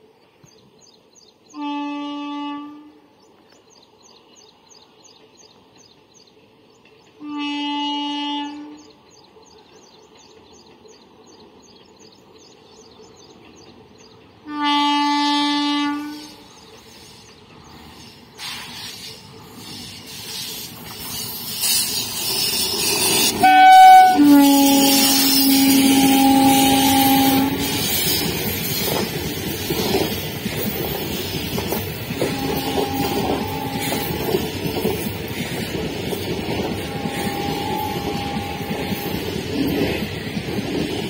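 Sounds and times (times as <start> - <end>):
train rumbling past: 0.0 - 41.0
train horn blasts: 1.5 - 3.1, 7.2 - 9.0, 14.4 - 16.5, 23.2 - 28.0, 32.2 - 34.4, 36.7 - 39.2.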